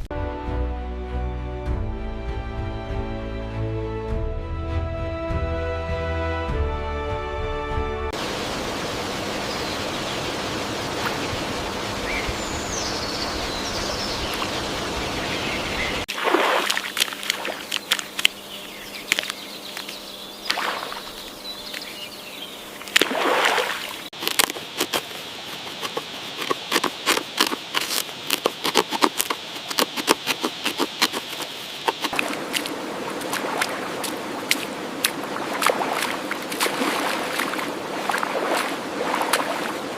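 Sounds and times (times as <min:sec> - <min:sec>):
water splashes and drips: 0:08.2 - 0:12.2, 0:16.0 - 0:18.4, 0:20.5 - 0:21.9, 0:22.8 - 0:24.6, 0:32.1 - 0:39.9
running water rushing: 0:08.2 - 0:18.5, 0:19.1 - 0:22.0, 0:22.6 - 0:39.9
bird chirps: 0:12.0 - 0:16.1, 0:17.7 - 0:22.8.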